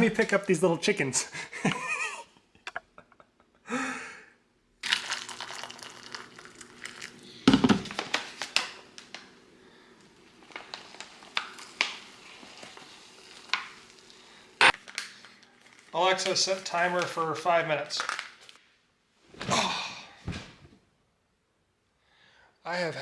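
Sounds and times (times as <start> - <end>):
foil pouch crinkling: 4.8 - 9.3, 10.1 - 17.1.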